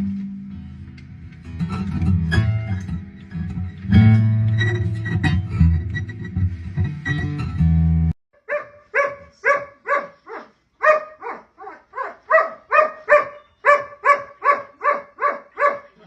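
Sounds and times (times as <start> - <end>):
dog barking: 8.4 - 16.0.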